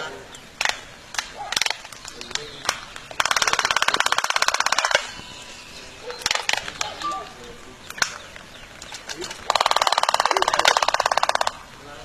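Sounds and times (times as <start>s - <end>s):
faint bird chirps: 4.9s - 9.3s
bird rattling call: 8.0s - 11.6s.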